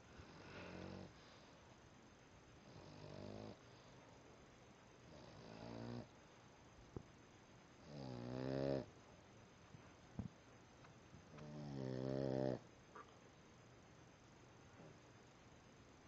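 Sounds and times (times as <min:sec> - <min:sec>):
dog snoring: 0:00.2 - 0:01.4, 0:02.6 - 0:03.6, 0:05.0 - 0:06.1, 0:07.8 - 0:08.9, 0:11.3 - 0:13.1.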